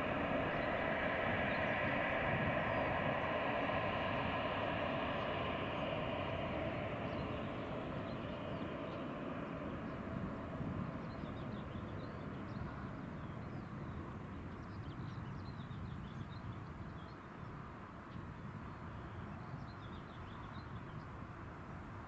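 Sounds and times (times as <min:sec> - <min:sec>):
passing vehicle rumble: 0:00.0 - 0:14.4
small birds chirping: 0:00.0 - 0:21.2.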